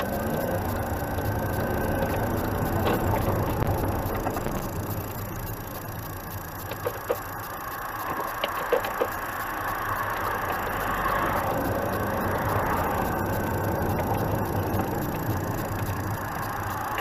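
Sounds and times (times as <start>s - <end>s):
light rattles and clicks: 0.0s - 17.0s
vehicle engine and tyre rumble: 0.0s - 17.0s.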